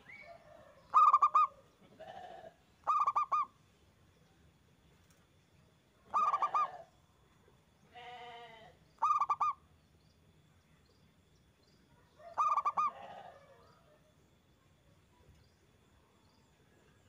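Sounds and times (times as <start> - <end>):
lower bird call: 0.0 - 1.6, 2.8 - 3.5, 6.1 - 6.9, 9.0 - 9.6
dove cooing: 0.0 - 1.7, 2.9 - 3.5, 6.1 - 6.9, 9.0 - 9.6, 12.2 - 13.6.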